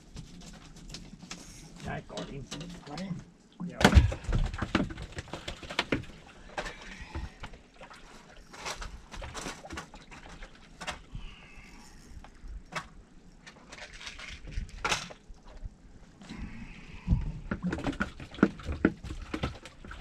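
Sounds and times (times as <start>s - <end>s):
fishing gear clicks and knocks: 8.2s - 11.1s.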